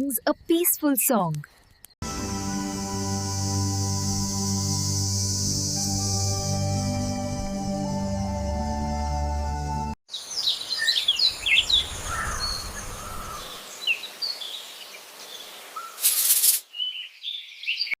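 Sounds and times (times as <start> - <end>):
birds chirping and trilling: 10.1 - 16.0, 16.6 - 18.0
burst of hiss: 16.0 - 16.7.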